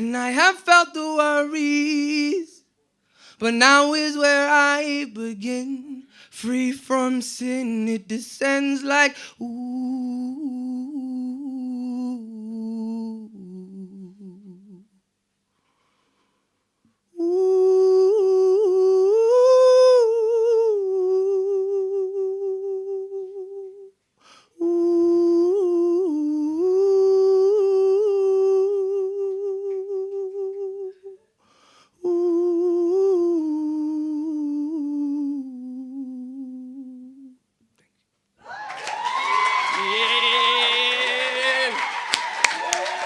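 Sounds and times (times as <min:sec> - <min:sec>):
man humming: 0:24.6 - 0:31.3, 0:39.8 - 0:41.8.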